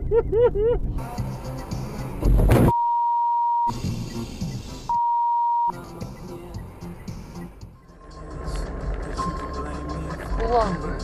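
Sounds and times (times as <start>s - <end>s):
censor beep: 2.7s - 3.8s, 4.9s - 5.8s.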